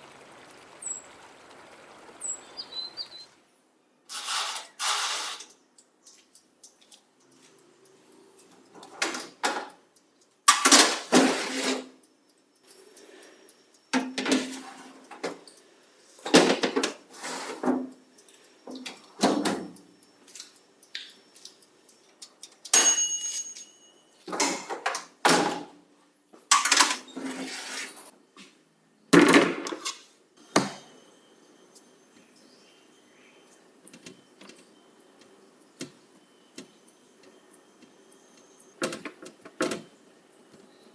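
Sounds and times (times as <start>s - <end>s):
ringing clink: 22.7s - 24.2s.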